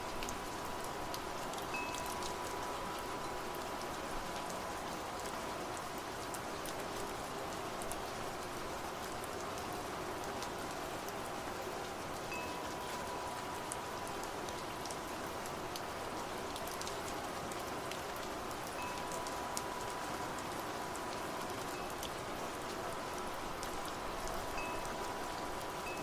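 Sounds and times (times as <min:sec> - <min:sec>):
rain falling: 0:00.0 - 0:26.0
raindrops ticking: 0:00.1 - 0:04.6.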